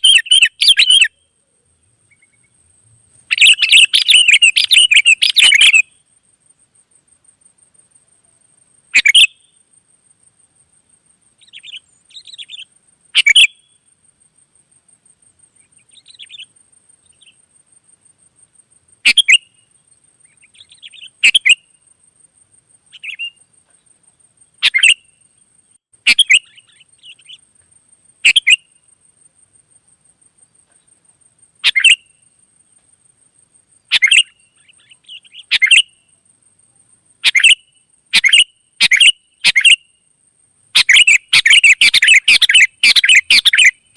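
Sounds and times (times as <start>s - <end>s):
bulbul chirping: 3.3s - 5.9s, 31.6s - 32.1s, 33.9s - 36.0s, 40.8s - 43.9s.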